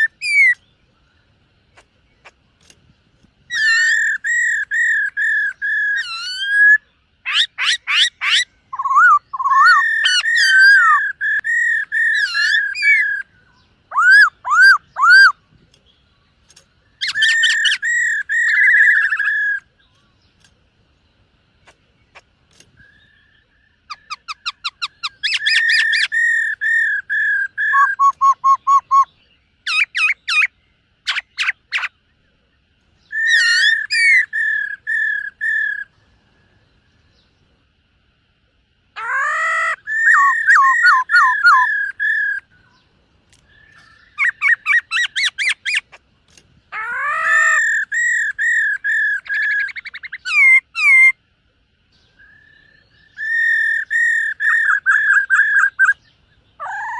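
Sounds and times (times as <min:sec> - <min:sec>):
bird singing whistled phrases: 0:00.0 - 0:00.7, 0:03.5 - 0:15.4, 0:22.8 - 0:30.5, 0:33.0 - 0:35.9, 0:39.0 - 0:42.8, 0:43.5 - 0:45.8, 0:46.8 - 0:51.2, 0:52.0 - 0:56.9.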